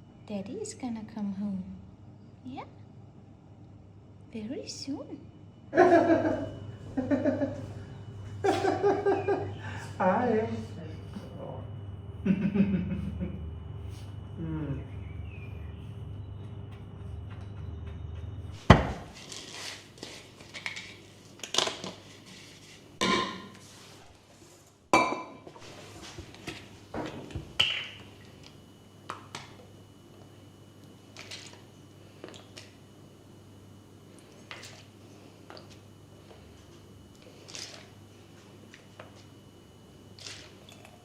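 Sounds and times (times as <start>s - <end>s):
dishes and utensils clinking: 23.0s - 23.6s.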